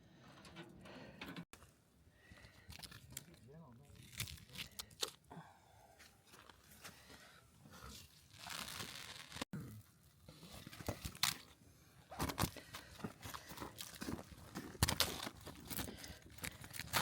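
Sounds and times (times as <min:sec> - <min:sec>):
sharp crunches and clicks: 0:02.6 - 0:05.3, 0:13.6 - 0:17.0
plastic crinkling and rustling: 0:08.3 - 0:09.5.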